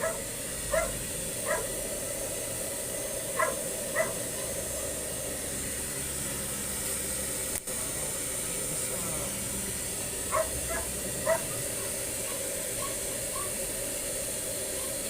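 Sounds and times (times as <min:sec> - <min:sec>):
dog barking: 0:00.0 - 0:01.8, 0:03.3 - 0:04.6, 0:10.3 - 0:13.6, 0:14.7 - 0:15.0
steady hiss: 0:00.0 - 0:15.0.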